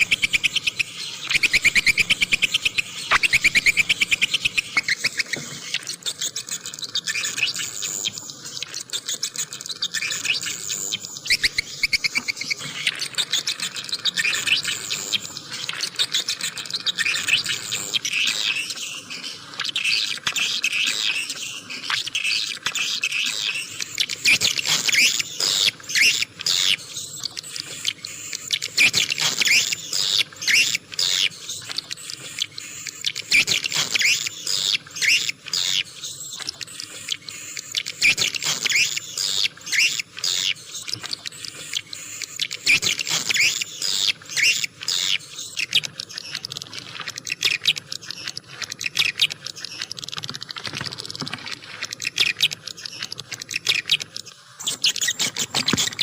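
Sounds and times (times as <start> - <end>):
swiftlets twittering: 0.0 - 56.0.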